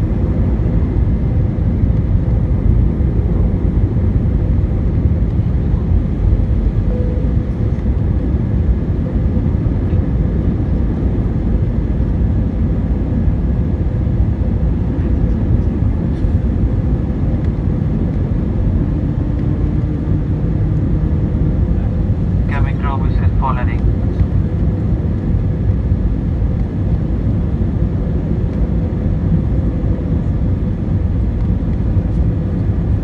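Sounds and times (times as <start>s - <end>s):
airliner cabin rumble: 0.0s - 33.0s
faint steady hum: 5.8s - 8.1s.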